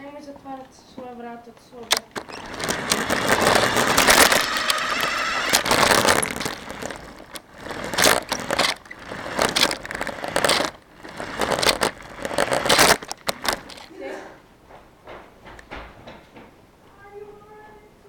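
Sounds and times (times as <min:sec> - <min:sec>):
rc car rushing and rattling: 0:01.8 - 0:13.9
sharp knocks and crackles: 0:01.9 - 0:13.9, 0:14.7 - 0:16.6.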